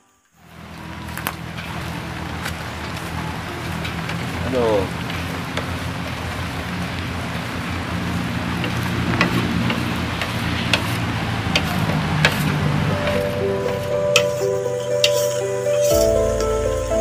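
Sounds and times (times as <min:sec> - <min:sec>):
knife tapping bamboo slats: 0:08.6 - 0:13.2
background hiss: 0:12.9 - 0:17.0.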